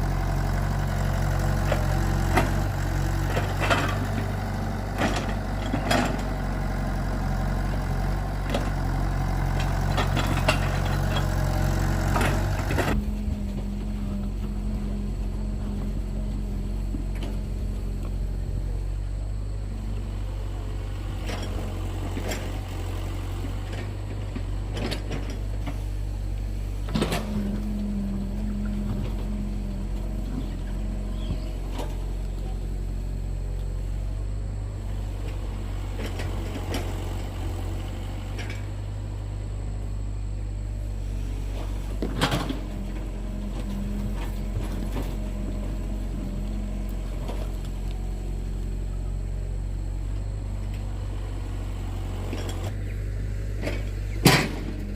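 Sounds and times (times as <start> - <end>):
engine humming: 0.0 - 54.9.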